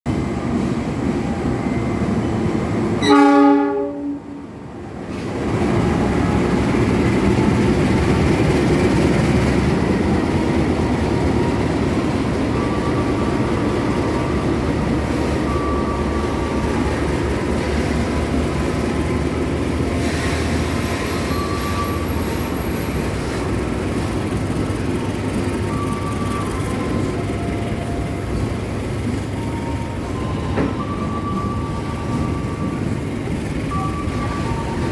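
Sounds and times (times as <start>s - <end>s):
freight train rumbling: 0.0s - 34.9s
high-pitched wheel squeals: 20.0s - 24.3s.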